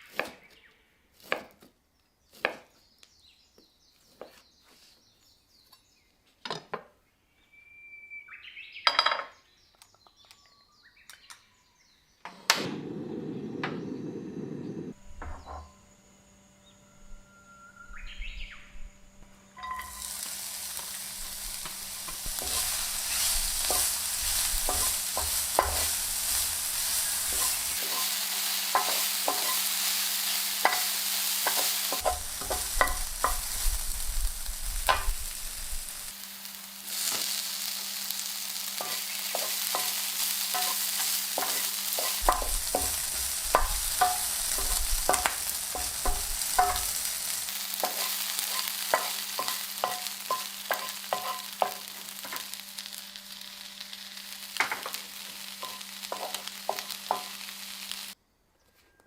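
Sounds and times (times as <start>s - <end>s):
utensil stirring and scraping pan: 19.6s - 36.1s, 38.7s - 52.6s, 54.6s - 57.6s
food sizzling in a frying pan: 19.6s - 58.2s.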